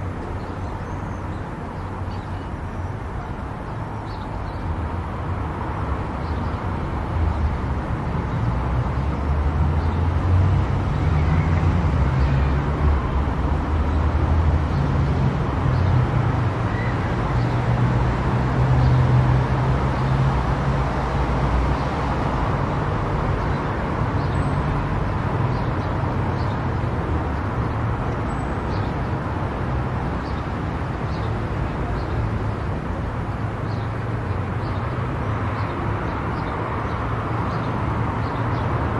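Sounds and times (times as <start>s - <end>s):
tyre and road noise: 0.0s - 38.9s.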